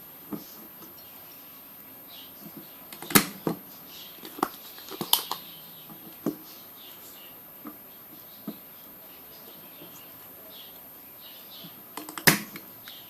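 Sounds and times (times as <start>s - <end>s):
sharp clicks and light knocks: 4.2s - 6.4s, 11.6s - 13.0s.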